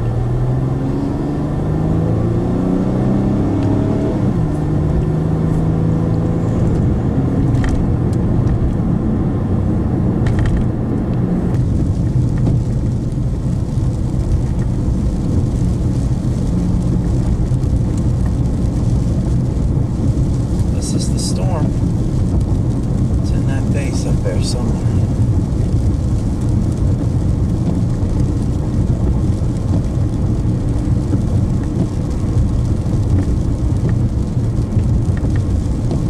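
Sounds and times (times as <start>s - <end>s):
car engine: 0.0s - 36.0s
road rumble: 0.0s - 36.0s.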